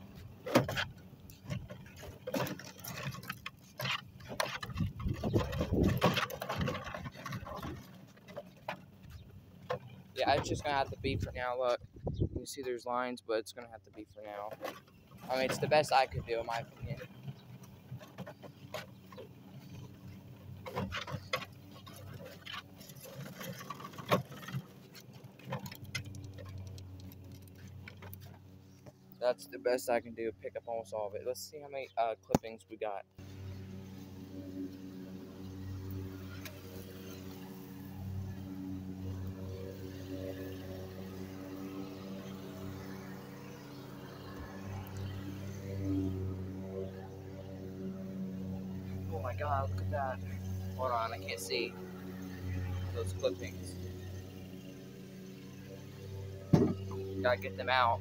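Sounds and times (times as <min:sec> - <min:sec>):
push sweeper brushes pattering: 0:00.0 - 0:11.6, 0:12.4 - 0:32.5.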